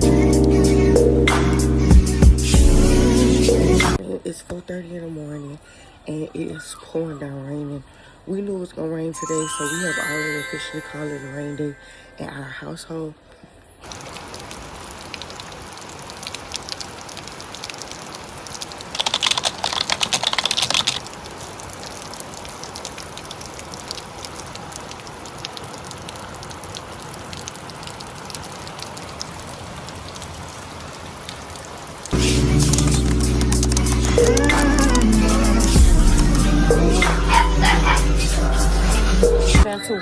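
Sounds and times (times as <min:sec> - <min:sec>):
heavy rain pattering: 0:13.8 - 0:39.1.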